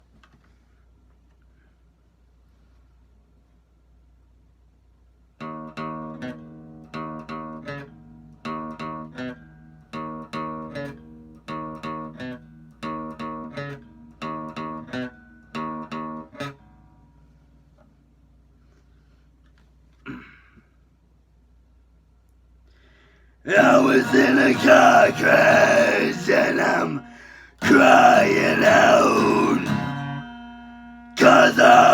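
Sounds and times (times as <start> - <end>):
acoustic guitar strumming: 23.5 - 31.9.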